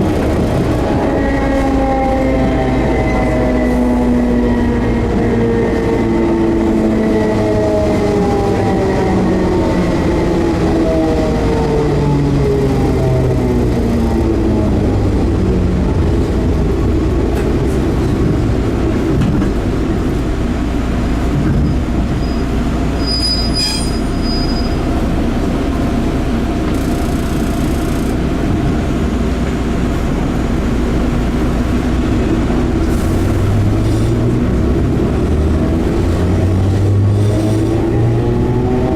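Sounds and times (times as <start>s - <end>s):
train wheels rumbling: 0.0s - 38.9s
high wheel squeal: 21.6s - 24.9s
traction motor whine: 26.5s - 28.4s.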